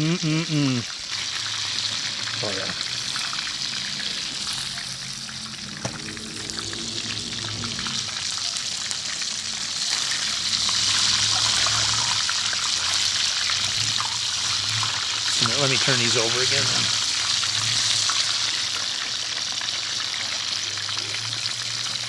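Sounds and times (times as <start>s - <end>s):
chicken deep-frying in oil: 0.3s - 22.0s
low hum: 3.3s - 9.8s.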